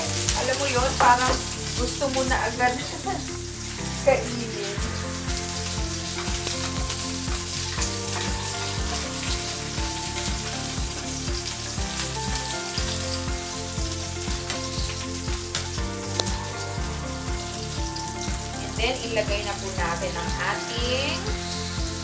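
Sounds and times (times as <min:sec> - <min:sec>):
background music: 0:00.0 - 0:22.0
food sizzling in a frying pan: 0:00.0 - 0:22.0
spatula stirring: 0:04.6 - 0:19.4.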